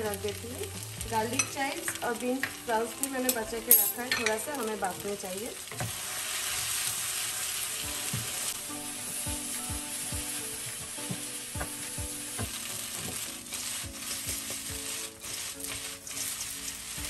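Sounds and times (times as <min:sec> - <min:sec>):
soft background music with beat: 0:00.0 - 0:05.0, 0:06.7 - 0:17.0
noodles sizzling in a wok: 0:00.0 - 0:17.0
spatula stirring in wok: 0:05.7 - 0:17.0.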